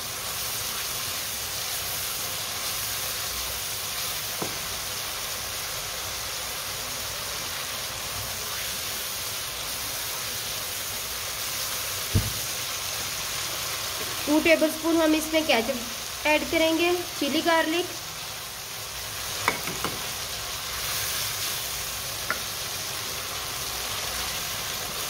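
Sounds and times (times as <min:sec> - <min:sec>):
chicken sizzling in wok: 0:00.0 - 0:25.0
spatula knock: 0:19.4 - 0:20.0.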